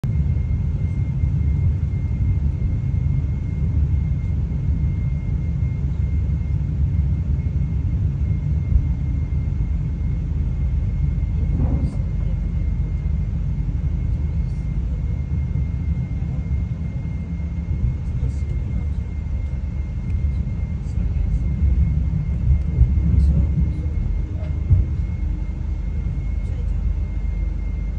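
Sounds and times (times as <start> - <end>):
high whine: 0.0 - 27.9
train rumbling inside carriage: 8.6 - 27.9.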